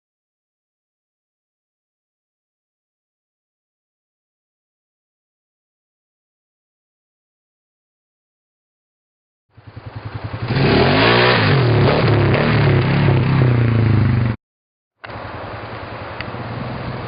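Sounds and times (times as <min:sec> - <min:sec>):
outboard motor revving: 0:09.7 - 0:14.3.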